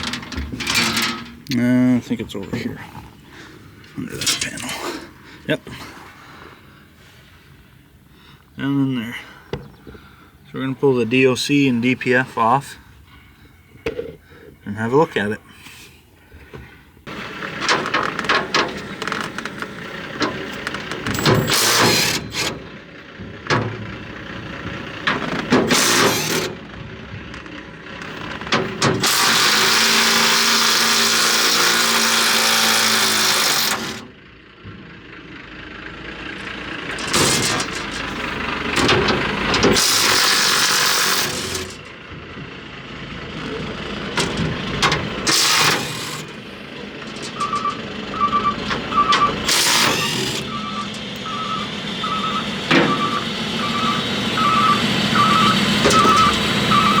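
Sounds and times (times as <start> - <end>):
metal clanks and rattles: 0.0 - 5.9, 16.5 - 35.0, 36.1 - 42.6, 43.4 - 51.8, 52.5 - 53.2
power tool running: 21.1 - 22.6, 25.2 - 26.6, 28.8 - 34.1, 39.7 - 41.8, 44.9 - 46.4, 49.3 - 51.5.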